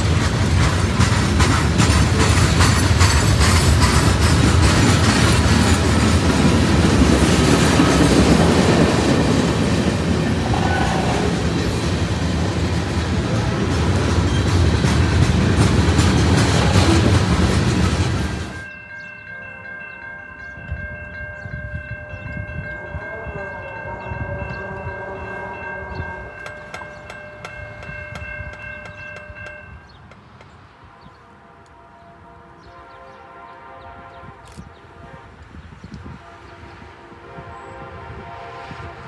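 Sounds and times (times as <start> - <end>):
freight train rumbling past: 0.0 - 39.0
distant locomotive horn: 10.1 - 11.8, 21.4 - 29.9, 30.8 - 39.0.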